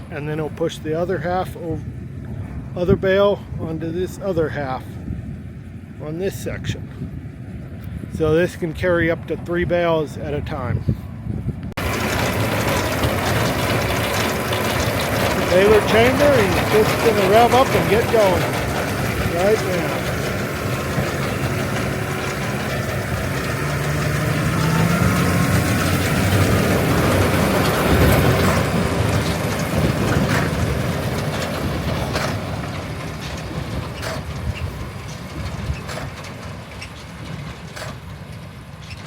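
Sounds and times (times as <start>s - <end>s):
tractor engine revving: 11.8s - 38.5s
baler clacking: 11.8s - 39.0s.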